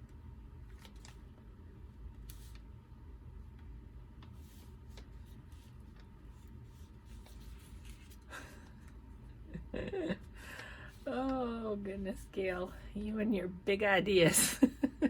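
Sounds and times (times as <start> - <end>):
low steady hum: 0.0 - 15.0
paper rustle: 0.6 - 1.2, 4.3 - 8.6
rubbing and scuffing on paper: 4.2 - 8.3.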